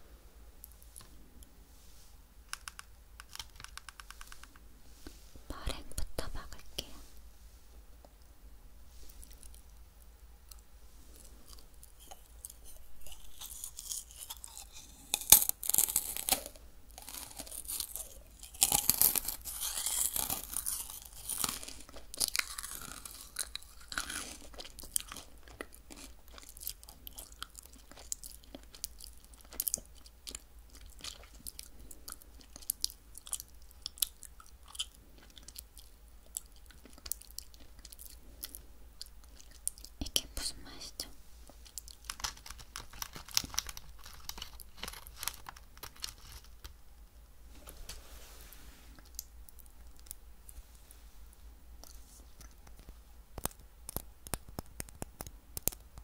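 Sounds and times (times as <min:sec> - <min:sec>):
crunching and chewing cookie: 0:09.0 - 0:46.9, 0:51.8 - 0:56.0.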